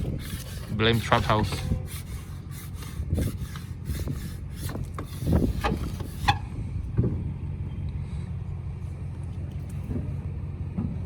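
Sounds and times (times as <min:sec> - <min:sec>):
rubbing and scraping strokes: 0:00.0 - 0:06.6
low steady rumble: 0:00.0 - 0:11.0.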